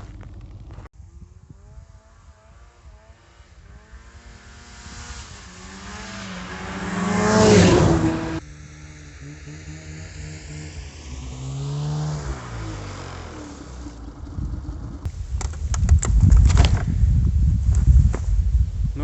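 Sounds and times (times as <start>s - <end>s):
snowmobile engine passing by: 0.0s - 15.1s.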